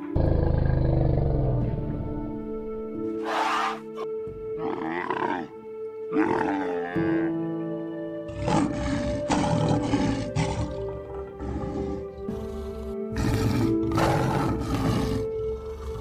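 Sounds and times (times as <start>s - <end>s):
background music with held notes: 0.0s - 16.0s
lion roaring: 3.2s - 3.8s, 4.6s - 7.4s, 8.3s - 16.0s
camel calling: 3.2s - 7.2s.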